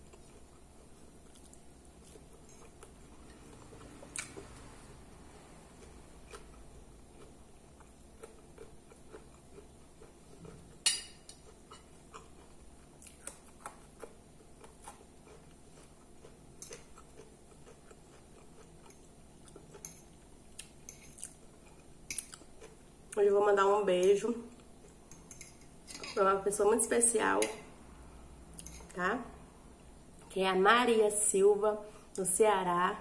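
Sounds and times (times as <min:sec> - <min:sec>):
person chewing: 0:00.0 - 0:04.7, 0:05.6 - 0:23.2.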